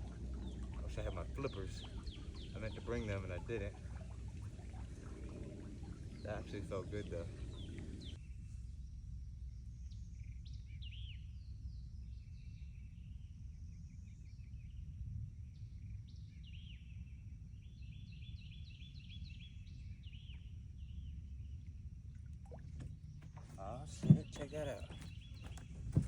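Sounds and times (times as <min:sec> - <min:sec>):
songbirds chirping and trilling: 0:00.0 - 0:08.5, 0:16.1 - 0:26.0
steady low rumble: 0:00.0 - 0:14.1.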